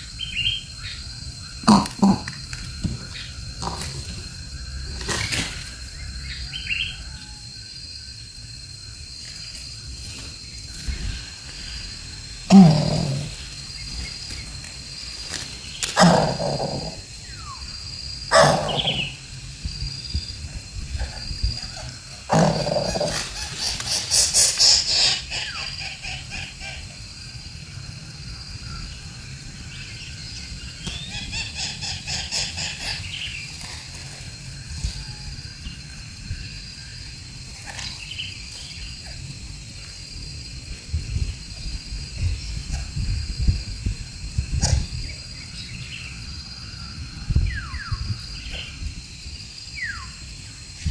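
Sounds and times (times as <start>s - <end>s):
pulsing insect chirp: 0.0s - 50.9s.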